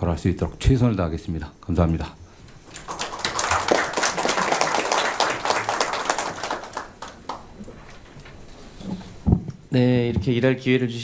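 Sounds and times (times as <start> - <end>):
people clapping: 2.6 - 8.0.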